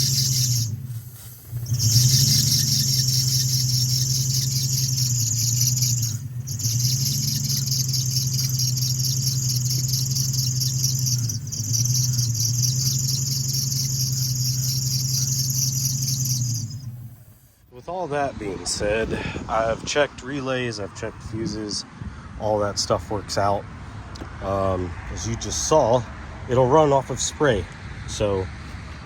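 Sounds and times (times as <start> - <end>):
car engine cranking on starter: 0.0 - 17.6.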